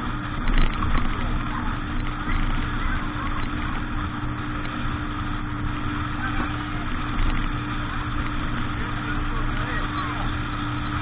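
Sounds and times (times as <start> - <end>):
motorboat engine running: 0.0 - 11.0
rush of noise: 0.0 - 11.0.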